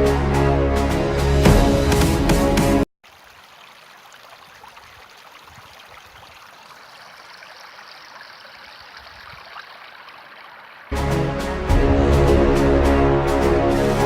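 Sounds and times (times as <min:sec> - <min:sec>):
stream flowing: 0:03.0 - 0:11.0.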